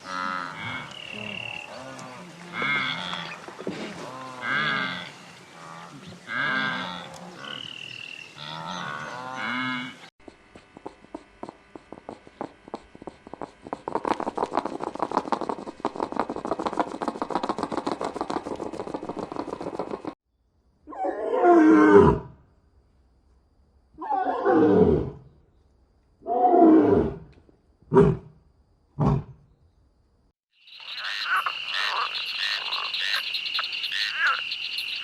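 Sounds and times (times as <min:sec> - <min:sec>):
short wavering animal calls: 0:30.7 - 0:35.0.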